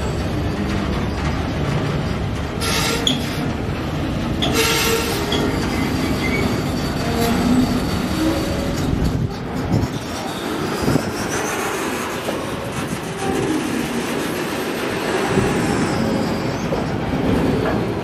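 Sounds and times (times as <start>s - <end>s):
steel wheels on rails: 0.0s - 18.0s
wheel screeches: 2.6s - 3.5s, 4.4s - 9.2s.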